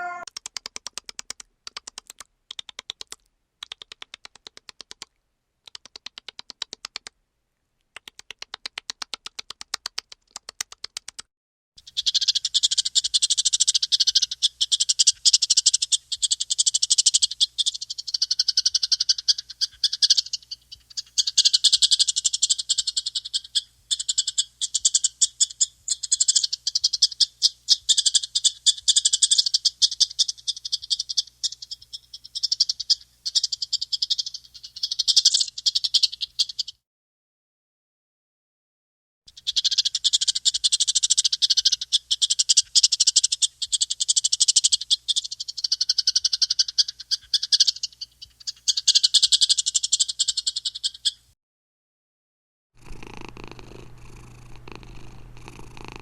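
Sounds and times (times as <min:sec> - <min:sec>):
high trilling chorus: 0:00.0 - 0:00.2
animal trilling calls: 0:00.0 - 0:00.3.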